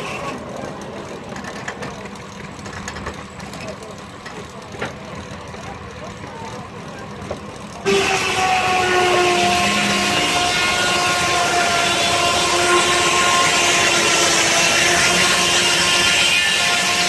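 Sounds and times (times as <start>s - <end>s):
steam traction engine: 0.0s - 17.0s
circular saw cutting log: 7.6s - 17.0s.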